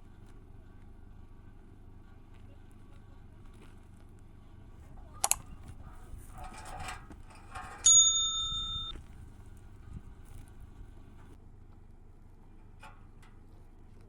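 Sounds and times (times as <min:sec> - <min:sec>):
scraping: 0:04.8 - 0:09.2
metal object ringing: 0:06.6 - 0:09.0.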